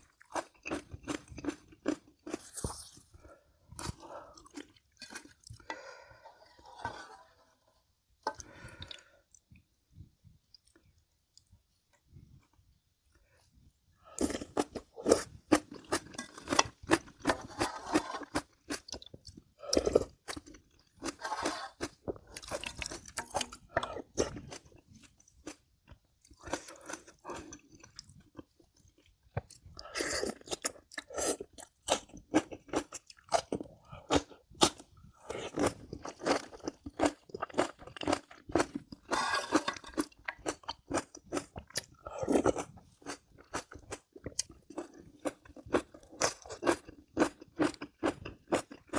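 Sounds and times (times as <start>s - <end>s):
crunchy chewing: 14.1s - 48.9s.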